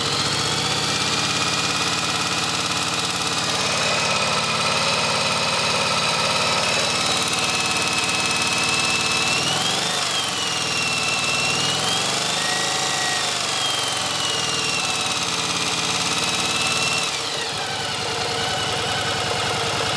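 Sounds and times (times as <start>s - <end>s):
motorcycle engine idling with rattle: 0.0s - 19.9s.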